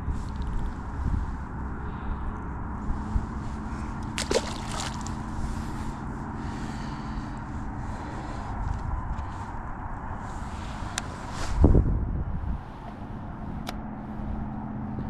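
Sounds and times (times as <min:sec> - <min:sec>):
wind rumbling on microphone: 0:00.0 - 0:15.0
waves lapping at shore: 0:03.8 - 0:06.1.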